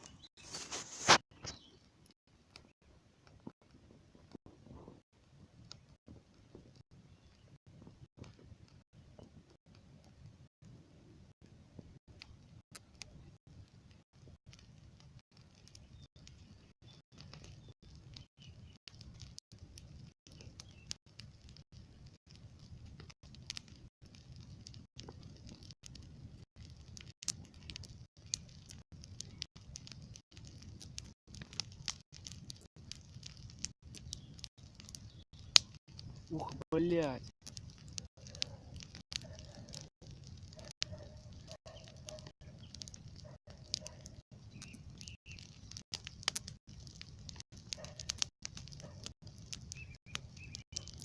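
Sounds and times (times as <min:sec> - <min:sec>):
campfire crackling and popping: 0:00.0 - 0:51.0
faint bird chirps: 0:43.9 - 0:45.6, 0:49.6 - 0:51.0.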